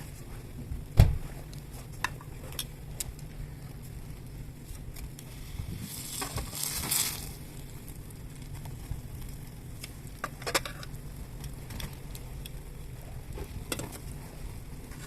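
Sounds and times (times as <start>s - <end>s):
hiss: 5.2s - 7.7s.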